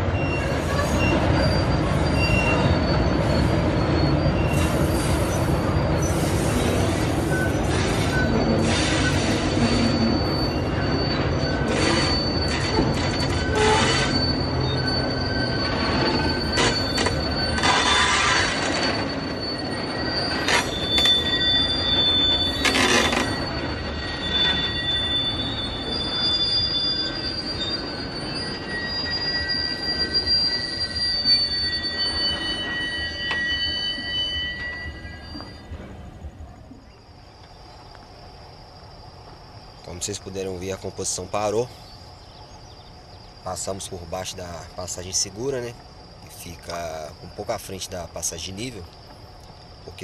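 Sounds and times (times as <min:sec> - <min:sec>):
wheel squeals: 0:00.0 - 0:38.3, 0:39.2 - 0:50.0
train wheels rumbling on rail: 0:00.0 - 0:50.0
scraping hisses from wagons: 0:04.5 - 0:10.6, 0:11.3 - 0:23.4.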